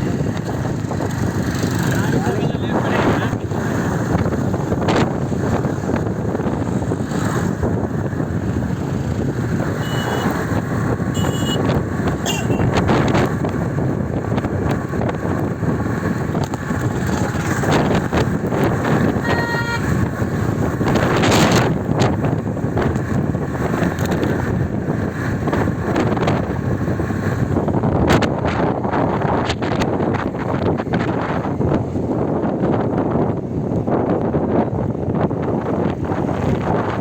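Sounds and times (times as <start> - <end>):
vehicle horns honking: 9.7 - 12.9, 19.2 - 20.0.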